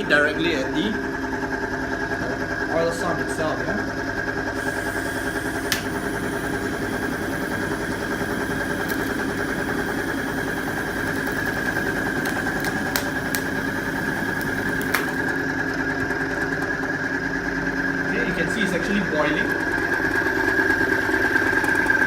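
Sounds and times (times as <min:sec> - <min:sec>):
test machine high whine: 0:02.4 - 0:16.0
sharp ticks: 0:04.6 - 0:15.3.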